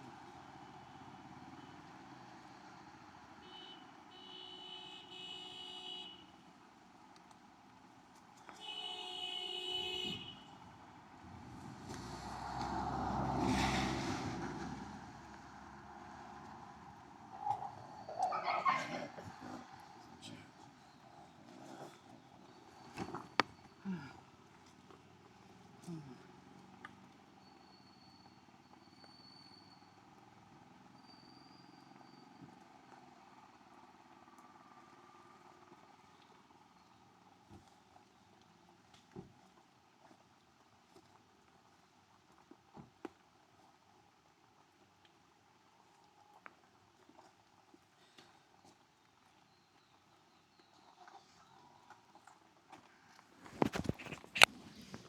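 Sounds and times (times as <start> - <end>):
vehicle horn: 3.4 - 6.4, 8.6 - 10.6
vehicle passing by: 11.1 - 20.0.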